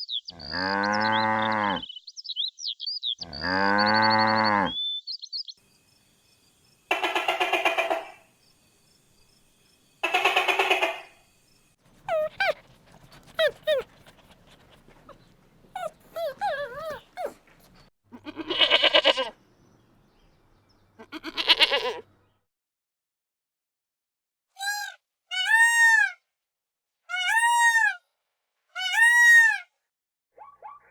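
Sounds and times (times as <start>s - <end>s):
higher wobbling animal calls: 6.9s - 8.2s, 10.0s - 11.2s
loud bleat-like calls: 18.2s - 19.4s, 21.0s - 22.1s.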